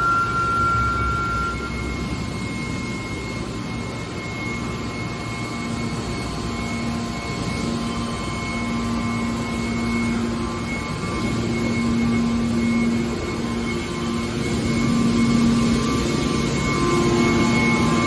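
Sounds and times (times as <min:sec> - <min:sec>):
baler machine humming: 0:00.0 - 0:18.0
high whine: 0:00.0 - 0:18.0.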